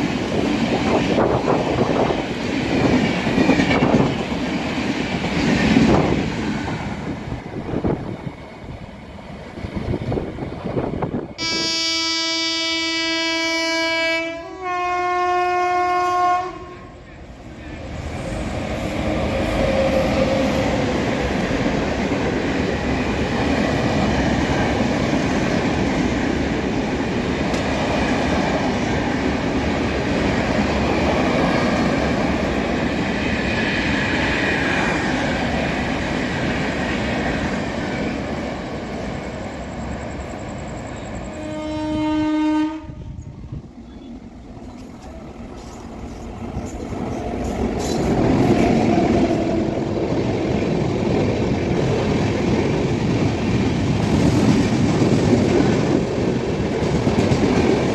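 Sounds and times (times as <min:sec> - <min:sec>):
train wheels rumbling and clattering: 0:00.0 - 0:11.4, 0:17.1 - 0:41.5, 0:42.9 - 0:57.9
train horn blast: 0:11.4 - 0:17.0, 0:41.3 - 0:43.4.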